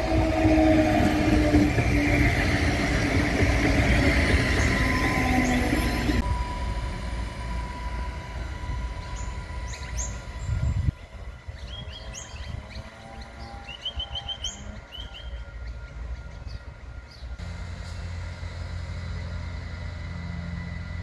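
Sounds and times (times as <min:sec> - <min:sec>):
diesel railcar rumble: 0:00.0 - 0:21.0
birds chirping: 0:08.9 - 0:17.4.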